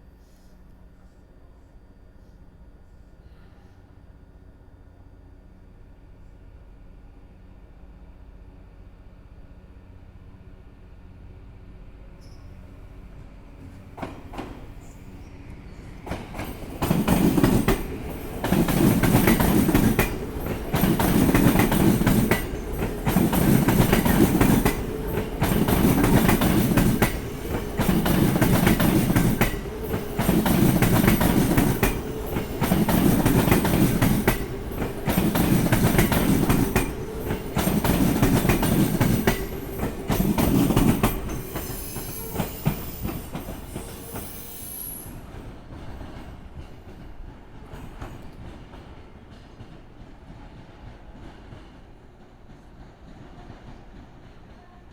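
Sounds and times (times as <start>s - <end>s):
train clacking over rail joints: 13.2s - 54.9s.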